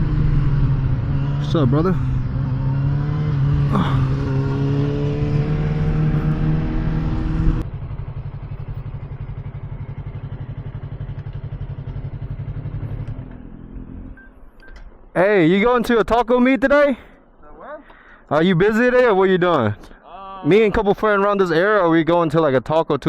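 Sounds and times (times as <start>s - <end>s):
motorcycle engine running: 0.0s - 14.2s.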